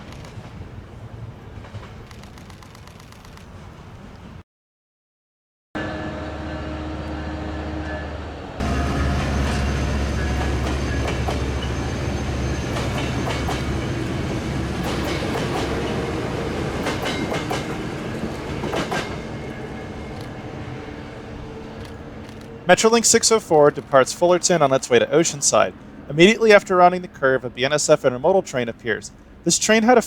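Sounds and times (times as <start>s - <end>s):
train wheels clicking over rail joints: 0.0s - 0.8s, 8.6s - 20.4s
locomotive engine humming: 5.8s - 30.0s.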